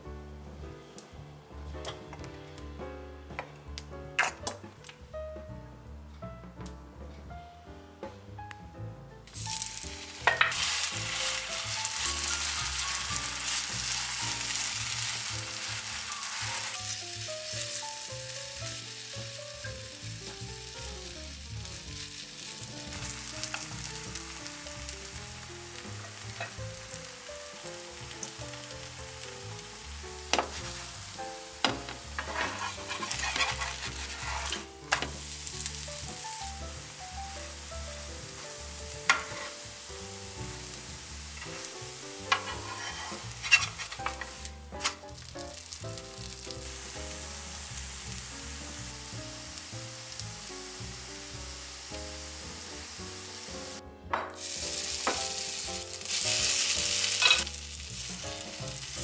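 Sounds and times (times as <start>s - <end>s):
batter sizzling in hot oil: 9.3s - 53.8s, 54.4s - 59.0s
spoon and spatula knocking on pan: 10.2s - 10.6s, 30.3s - 30.7s, 31.6s - 35.3s, 39.0s - 39.5s, 42.3s - 45.0s, 54.1s - 54.4s, 55.0s - 55.4s.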